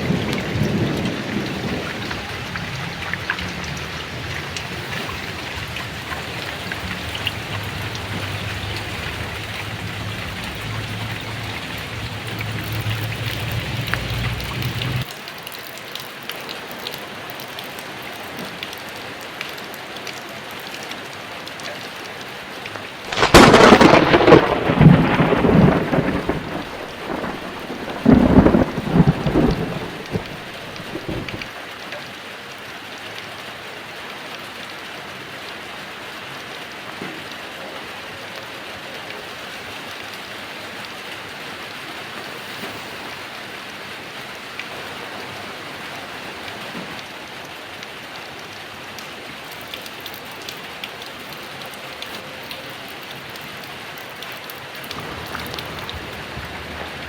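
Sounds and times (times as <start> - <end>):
loud thunderclap: 0.0 - 15.0, 23.1 - 31.5, 54.9 - 57.0
thunder rumbling: 0.0 - 15.0, 23.1 - 31.5, 54.9 - 57.0
heavy rain: 0.0 - 57.0.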